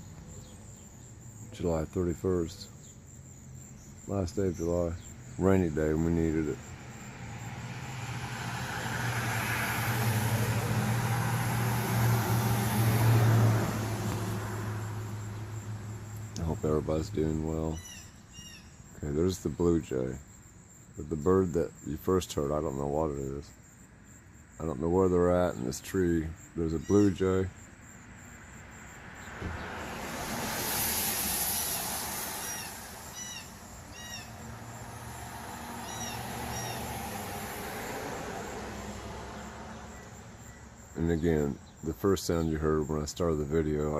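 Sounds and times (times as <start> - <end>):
vehicle passing by: 4.2 - 17.7, 28.2 - 43.9
bird calling: 17.7 - 18.9, 26.7 - 27.4, 31.6 - 34.6, 35.6 - 37.0.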